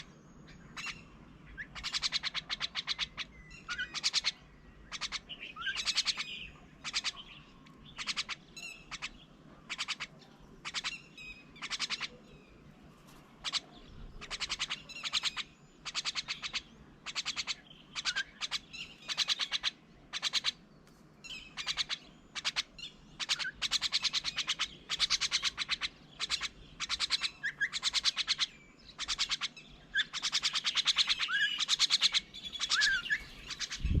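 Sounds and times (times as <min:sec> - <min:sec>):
birds harsh rasping calls: 0:00.7 - 0:34.0.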